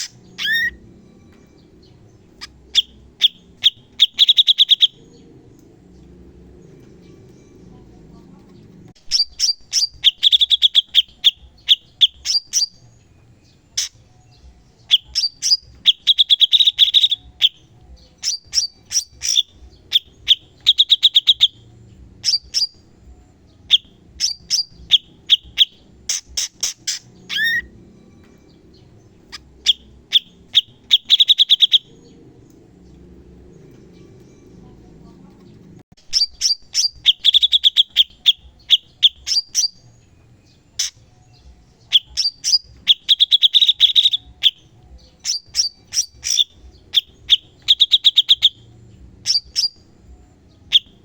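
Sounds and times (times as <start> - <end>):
bird singing sharp high notes: 0.0 - 5.3, 23.7 - 32.3, 36.0 - 49.9.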